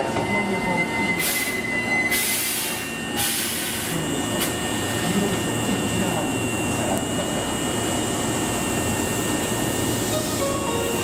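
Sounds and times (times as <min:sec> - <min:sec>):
train high-pitched squeal: 0:00.0 - 0:05.1, 0:09.0 - 0:11.0.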